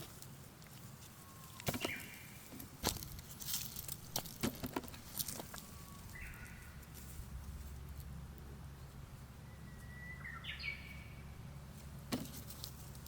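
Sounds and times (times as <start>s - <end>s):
bird chirp: 1.2s - 2.5s, 5.5s - 6.9s, 9.4s - 11.5s.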